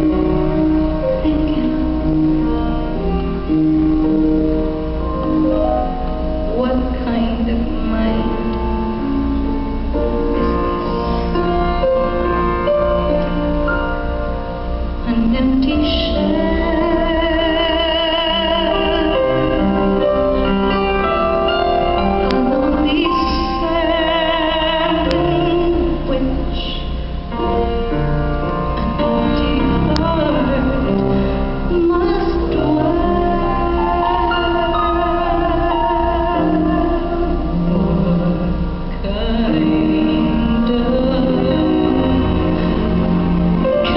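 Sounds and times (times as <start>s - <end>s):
live band music: 0.0s - 43.9s
sustained keyboard chords: 0.0s - 43.9s
woman singing long notes: 28.7s - 43.9s.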